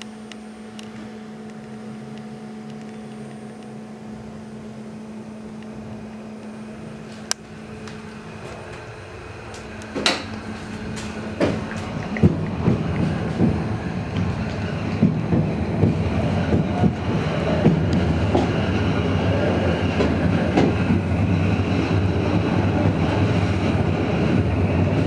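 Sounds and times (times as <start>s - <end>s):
train carriage hum: 0.0s - 25.0s
train wheels clattering over joints: 7.8s - 21.9s.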